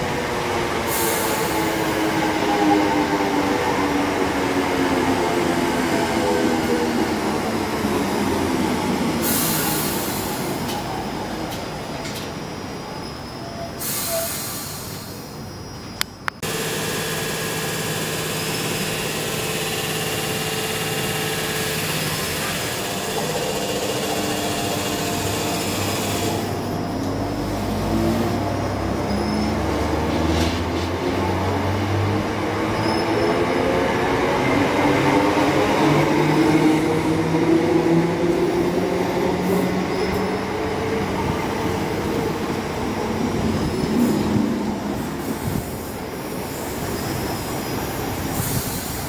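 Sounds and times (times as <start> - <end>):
train wheel and rail rumble: 0.0 - 49.0
train motor hum: 16.4 - 28.6.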